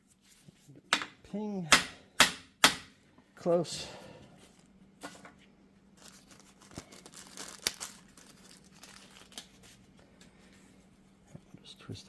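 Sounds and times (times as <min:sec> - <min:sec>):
faint steady hum: 0:00.0 - 0:12.0
crinkling rustle: 0:05.9 - 0:09.9.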